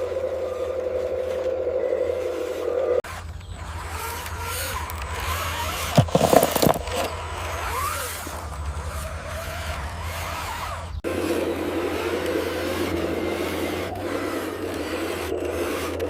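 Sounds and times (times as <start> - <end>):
small electric motor whirring: 0.0 - 16.0
clattering: 5.7 - 7.2.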